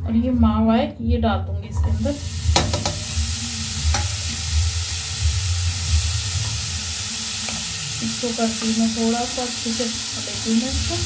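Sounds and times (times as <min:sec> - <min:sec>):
food sizzling in a pan: 0:01.9 - 0:11.0.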